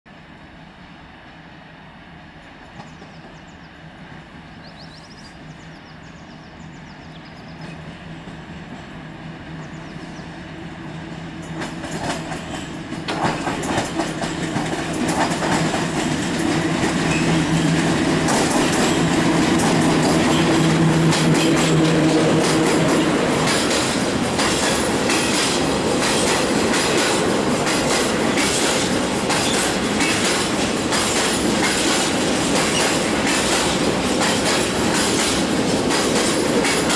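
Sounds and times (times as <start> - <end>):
locomotive hum: 0.1 - 36.9
train rumble: 0.1 - 36.9
wheels clicking over rail joints: 11.1 - 36.9.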